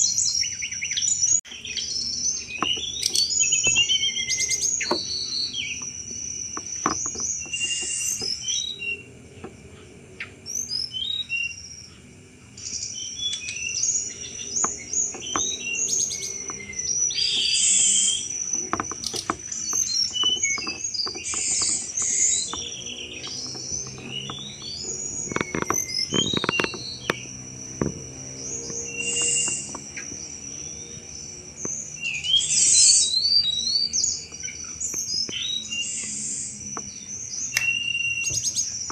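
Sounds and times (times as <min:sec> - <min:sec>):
bird chirping and trilling: 0:00.0 - 0:38.9
high insect-like buzz: 0:02.3 - 0:38.9.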